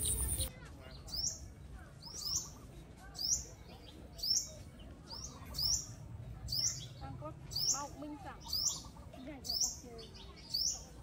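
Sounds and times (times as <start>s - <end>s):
bird chirping: 0.0s - 0.5s.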